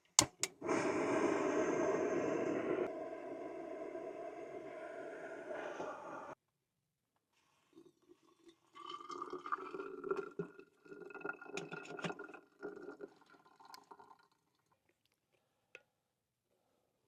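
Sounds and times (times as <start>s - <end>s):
click: 0.2s - 0.6s
liquid pouring into container: 7.6s - 15.0s.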